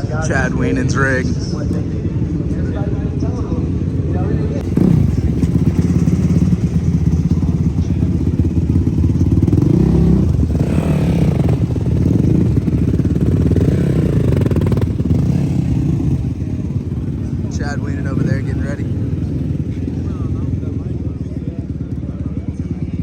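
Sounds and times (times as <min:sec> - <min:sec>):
race engine revving: 0:04.6 - 0:21.0.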